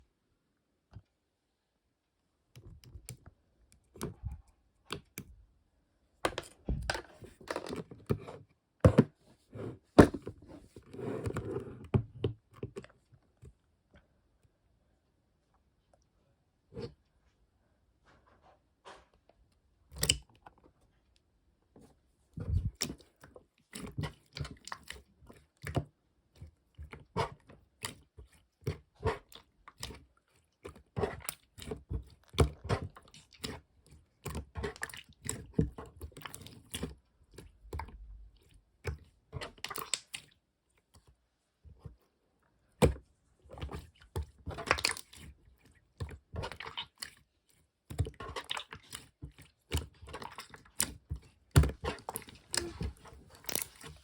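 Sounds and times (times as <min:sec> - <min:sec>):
hands squishing slime: 0:22.4 - 0:41.1, 0:42.7 - 0:54.0.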